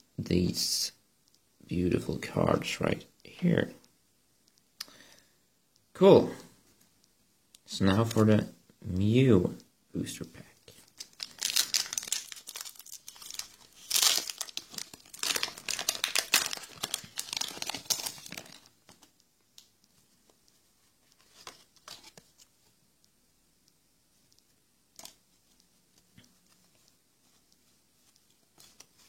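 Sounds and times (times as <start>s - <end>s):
soft ticks: 1.2s - 1.5s, 3.2s - 4.9s, 22.1s - 28.9s
foil wrapper crinkling and tearing: 11.0s - 19.0s.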